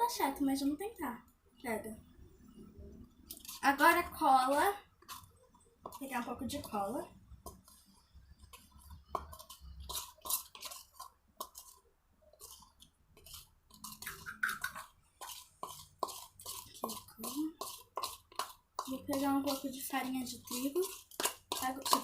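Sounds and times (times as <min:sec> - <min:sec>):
clicks taps and scrapes of utensils: 0:05.0 - 0:11.8, 0:12.4 - 0:22.0.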